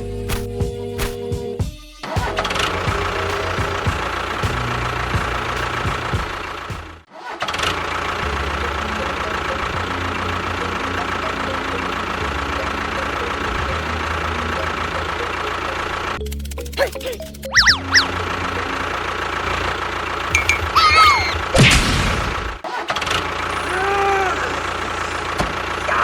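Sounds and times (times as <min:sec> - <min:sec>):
machine whining and rumbling: 0:00.0 - 0:26.0.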